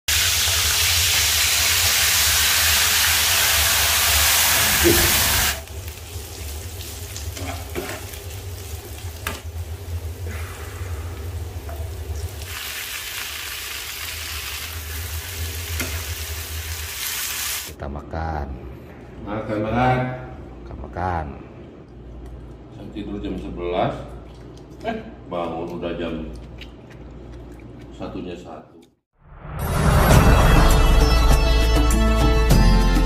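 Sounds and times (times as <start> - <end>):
fish frying in hot oil: 0.1 - 11.1, 11.9 - 17.7
vegetables sizzling stir-fried: 0.1 - 17.8.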